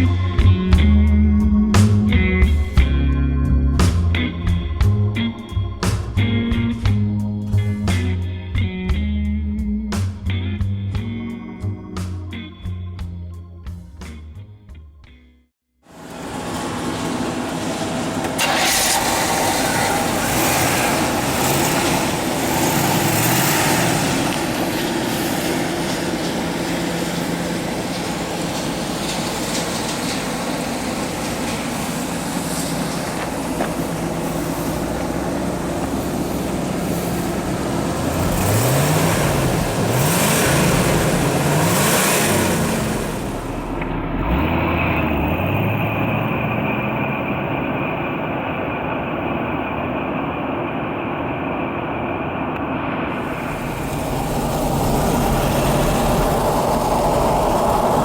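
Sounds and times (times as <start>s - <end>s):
car engine running: 16.1s - 58.0s.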